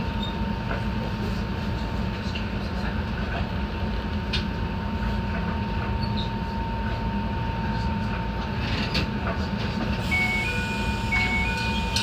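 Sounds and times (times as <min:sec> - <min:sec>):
train rumbling from inside: 0:00.0 - 0:12.0
two-tone electronic beeping: 0:10.1 - 0:12.0.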